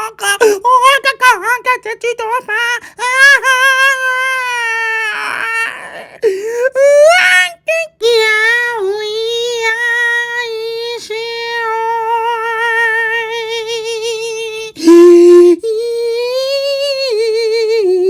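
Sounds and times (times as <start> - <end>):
young child wailing: 3.1 - 6.2.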